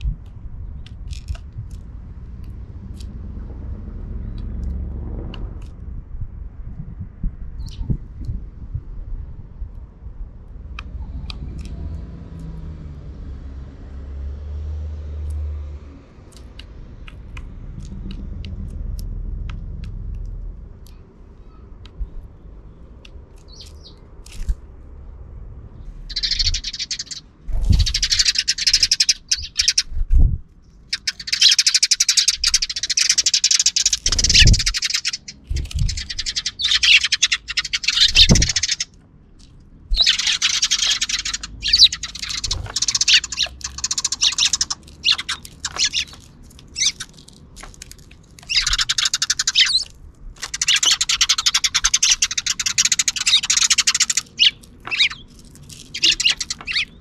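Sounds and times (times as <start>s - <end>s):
sparrows chirping: 7.6s - 8.8s, 16.2s - 57.0s.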